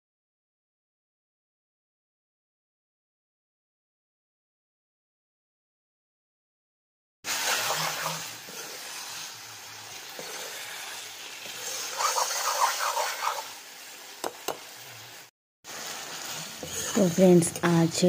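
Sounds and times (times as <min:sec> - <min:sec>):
chicken sizzling in a wok: 0:07.2 - 0:18.0
spatula scraping a wok: 0:07.3 - 0:14.2, 0:15.7 - 0:17.6.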